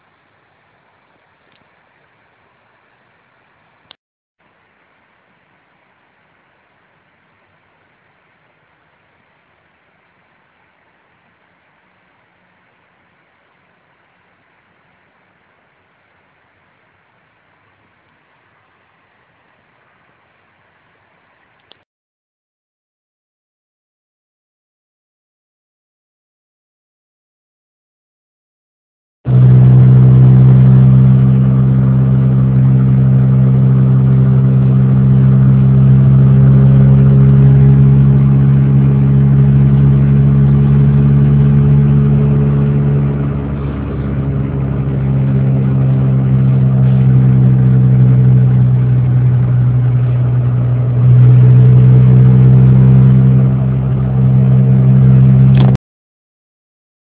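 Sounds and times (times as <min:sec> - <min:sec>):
road noise: 0:00.0 - 0:21.8, 0:29.3 - 0:55.8
car engine droning at high revs: 0:29.3 - 0:55.8.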